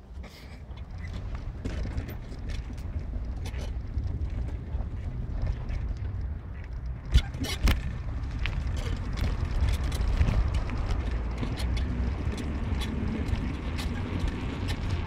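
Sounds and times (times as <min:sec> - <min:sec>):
road rumble inside car: 0:00.0 - 0:15.0.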